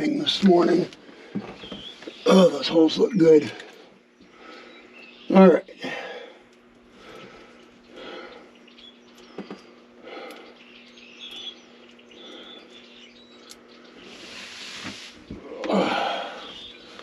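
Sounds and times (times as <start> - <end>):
faint bird chirps: 1.5 - 6.2, 7.1 - 14.5, 15.5 - 17.0.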